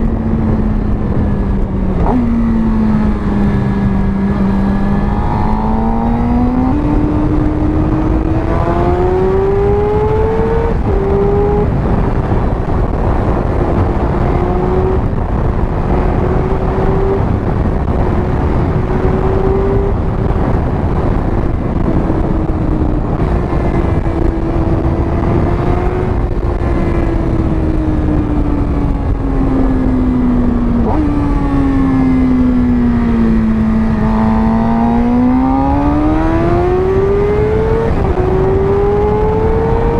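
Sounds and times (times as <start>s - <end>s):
motorcycle engine revving: 0.0s - 39.9s
wind on microphone: 0.0s - 39.9s.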